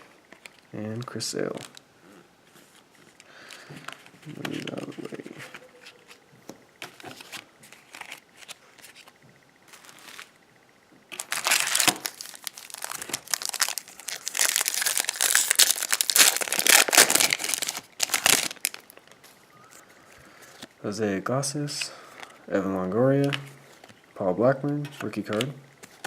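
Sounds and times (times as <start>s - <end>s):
foil wrapper crinkling and tearing: 11.1s - 19.2s.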